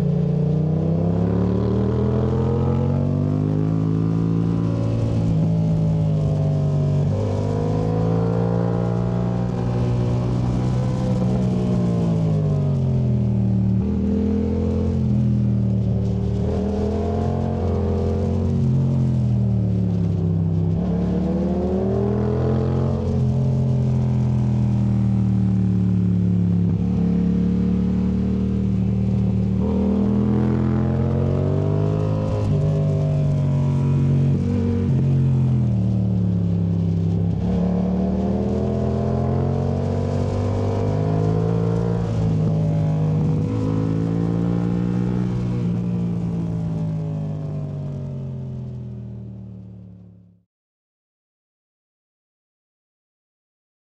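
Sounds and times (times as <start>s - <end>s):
motorcycle engine revving: 0.0s - 19.3s, 19.9s - 48.7s.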